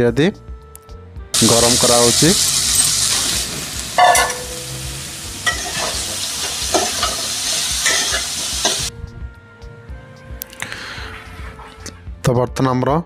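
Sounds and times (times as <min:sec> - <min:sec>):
greens sizzling in hot oil: 0:01.4 - 0:08.9
metal spatula scraping a pan: 0:02.6 - 0:08.9, 0:11.0 - 0:12.0.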